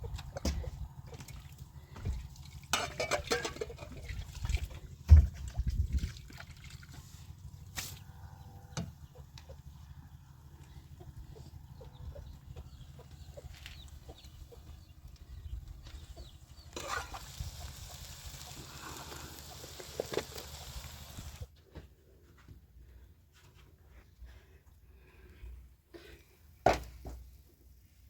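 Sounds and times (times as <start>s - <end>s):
chickens clucking: 0.0s - 2.2s, 8.1s - 21.4s.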